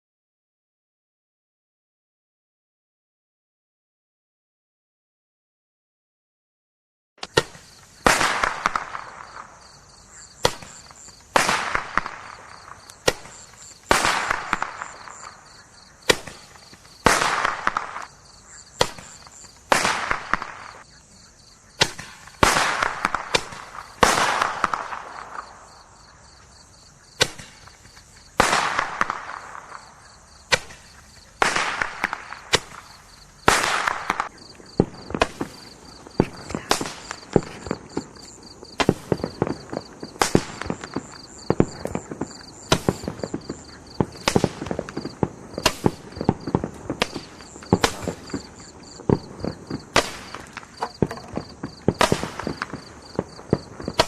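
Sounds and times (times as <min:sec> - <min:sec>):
roman candles popping: 0:27.2 - 0:54.0.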